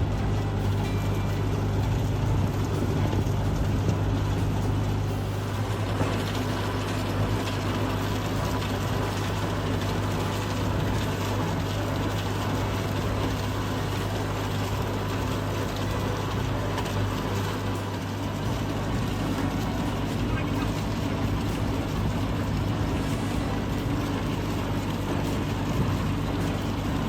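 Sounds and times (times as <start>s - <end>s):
engine running steadily: 0.0s - 27.0s.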